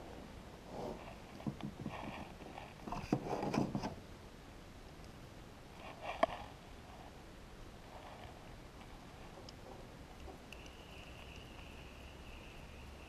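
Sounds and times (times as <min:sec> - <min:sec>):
soft rustling: 0:07.8 - 0:11.3.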